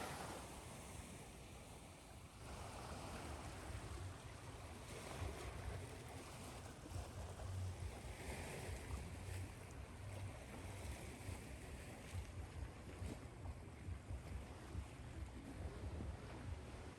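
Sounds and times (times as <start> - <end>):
ocean surf washing: 0.0 - 0.7.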